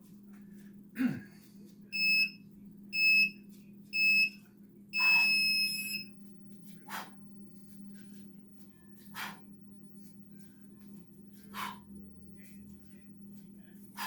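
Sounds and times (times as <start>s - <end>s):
long timer beep: 2.0s - 2.4s, 3.0s - 3.4s, 4.0s - 4.4s, 5.0s - 6.1s
short timer beeps: 5.0s - 6.1s.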